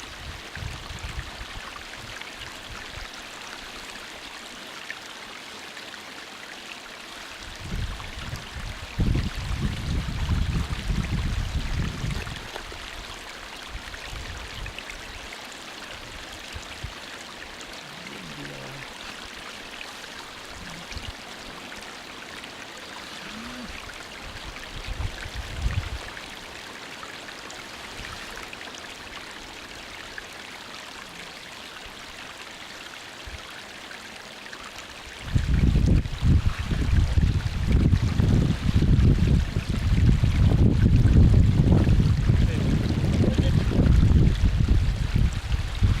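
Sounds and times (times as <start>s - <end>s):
stream water rushing: 0.0s - 46.0s
low rumbles on microphone: 35.2s - 46.0s.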